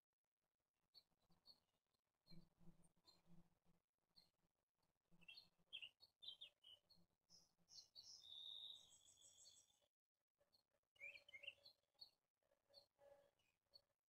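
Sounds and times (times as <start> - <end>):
small birds chirping: 5.2 - 9.9, 10.5 - 12.9.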